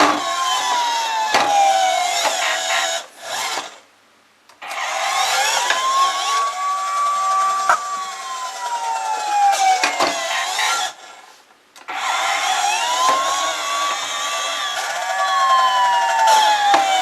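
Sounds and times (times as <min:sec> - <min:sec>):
toy siren wailing: 0:04.8 - 0:11.0, 0:12.1 - 0:17.0.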